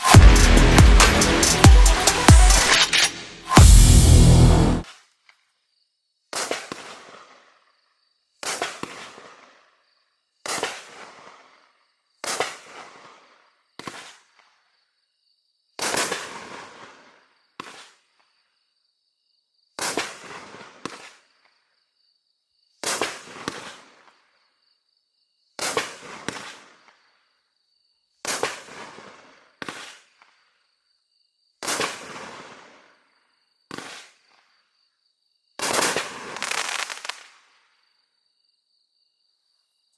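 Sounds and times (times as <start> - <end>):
fireworks bangs: 0.0 - 4.8, 35.6 - 37.4.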